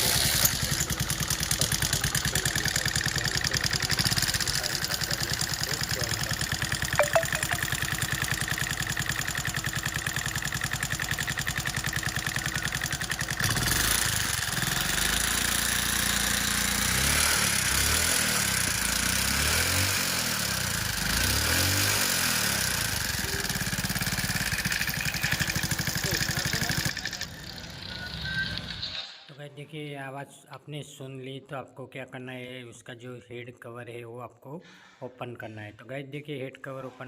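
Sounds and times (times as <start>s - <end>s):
moped engine revving: 0.0s - 7.0s, 7.6s - 28.8s.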